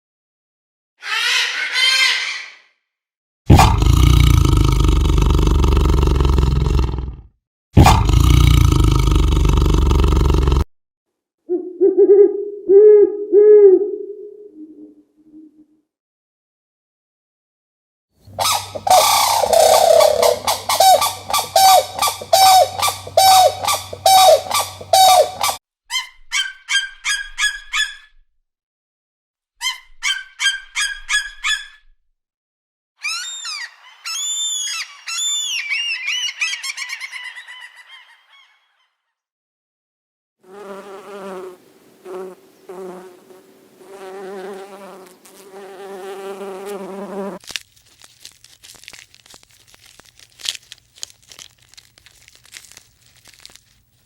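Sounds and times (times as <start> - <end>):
high rising-and-falling calls: 18.4 - 25.6, 33.0 - 37.6
quick high chirps: 18.4 - 25.6
rapid honking animal calls: 18.4 - 25.6.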